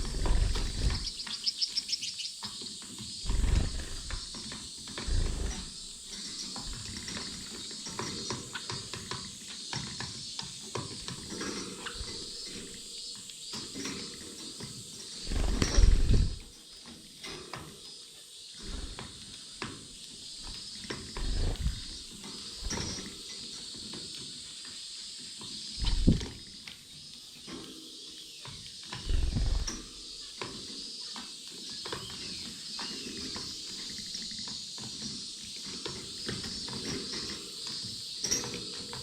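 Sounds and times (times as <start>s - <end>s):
birds pecking seed: 0.0s - 39.0s
finches chirping: 0.0s - 39.0s
muffled low thumps: 21.2s - 21.9s, 25.8s - 26.3s, 29.1s - 29.7s.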